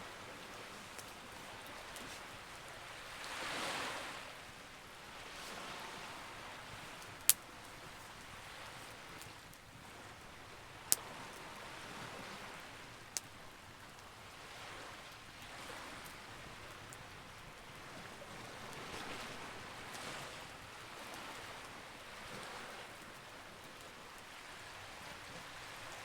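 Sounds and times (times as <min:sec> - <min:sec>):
burning wood popping: 0:06.8 - 0:09.7.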